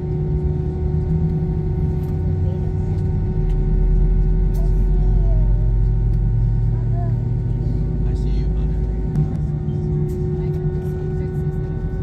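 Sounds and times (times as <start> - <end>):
airliner cabin drone: 0.0 - 12.0.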